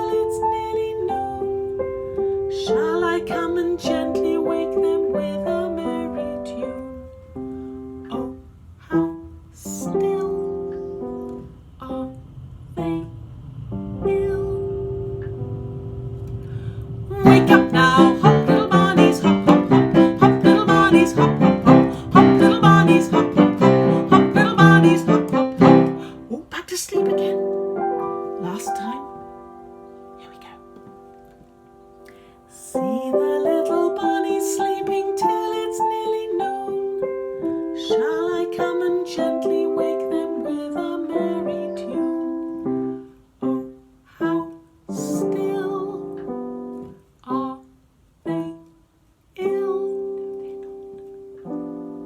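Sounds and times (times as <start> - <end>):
person singing: 2.6 - 6.9, 14.0 - 14.8, 17.1 - 27.5, 28.4 - 29.2, 32.5 - 37.0, 37.8 - 42.4
held chord: 12.8 - 26.3
plucked instrumental accompaniment: 17.3 - 26.1.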